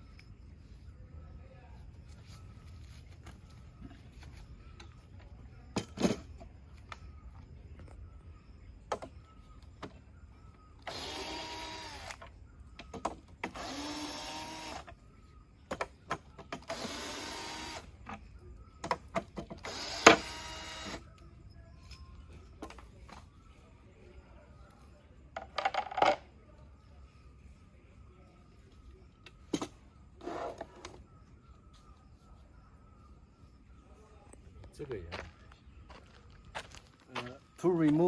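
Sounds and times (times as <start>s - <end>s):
power drill running: 10.8s - 12.2s, 13.5s - 14.9s, 16.7s - 17.9s, 19.6s - 21.0s.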